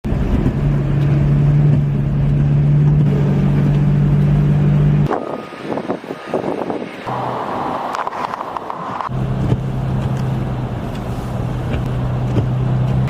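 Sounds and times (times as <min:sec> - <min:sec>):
loud engine drone: 0:02.8 - 0:11.3
wind noise on microphone: 0:05.0 - 0:10.2.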